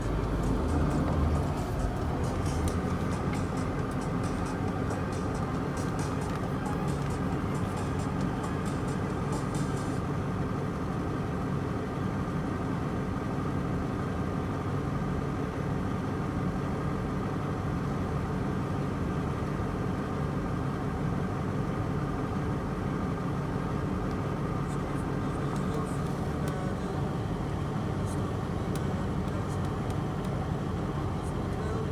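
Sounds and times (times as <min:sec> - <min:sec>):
fast high ticking: 0:00.0 - 0:10.0
diesel engine running: 0:00.0 - 0:31.9.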